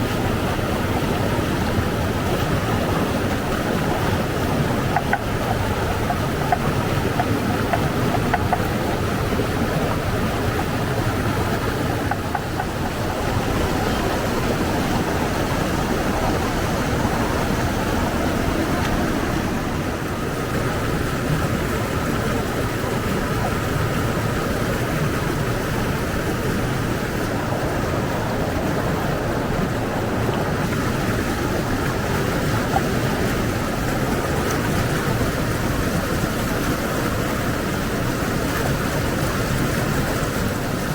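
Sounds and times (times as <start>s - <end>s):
flowing water rushing: 0.0s - 40.9s.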